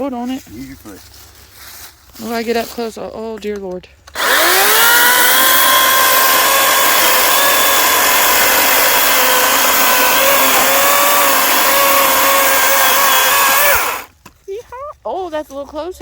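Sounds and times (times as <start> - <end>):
electric chainsaw whining: 4.2 - 14.1.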